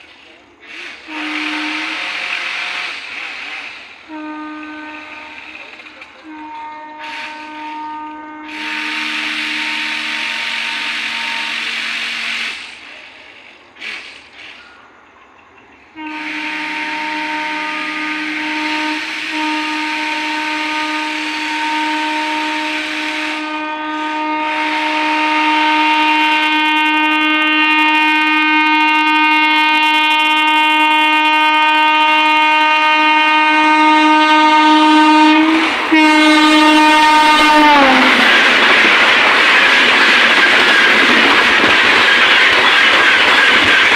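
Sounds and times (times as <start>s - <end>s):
train horn blasts: 0.7s - 12.6s, 16.0s - 38.8s.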